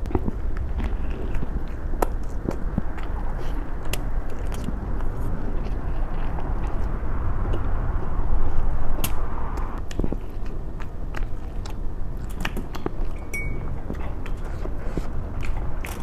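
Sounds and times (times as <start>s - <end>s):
person chewing food: 0.0s - 7.7s, 9.8s - 16.0s.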